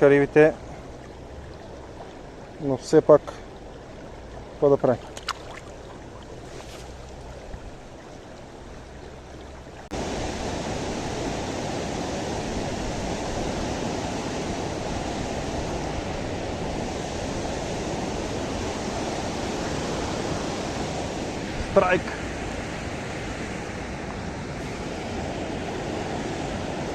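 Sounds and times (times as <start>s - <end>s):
mountain river rushing over stones: 4.4s - 23.0s.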